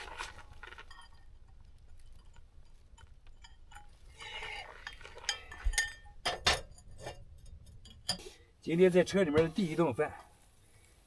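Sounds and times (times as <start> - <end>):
clinks of metal and glass items: 0.3 - 8.4.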